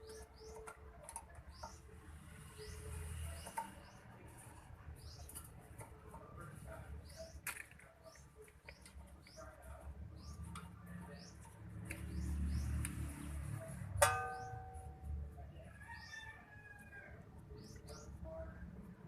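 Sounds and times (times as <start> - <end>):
small birds chirping: 0.0 - 14.6, 17.4 - 19.0
metallic clang: 14.0 - 15.2.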